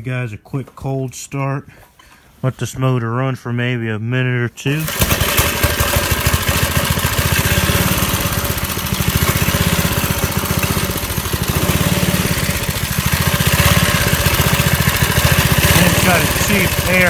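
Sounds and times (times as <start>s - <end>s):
small engine running fast: 4.8s - 17.0s.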